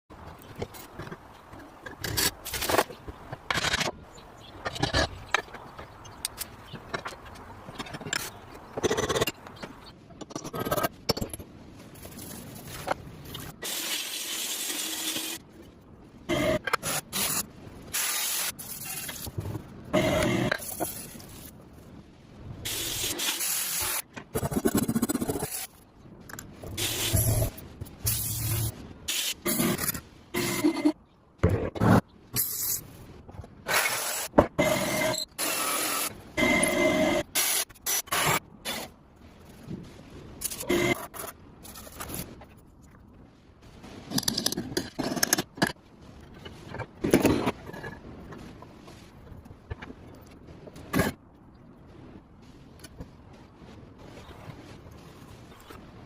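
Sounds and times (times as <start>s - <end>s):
hissing spray: 16.9s - 19.3s, 22.7s - 24.0s, 26.8s - 29.8s.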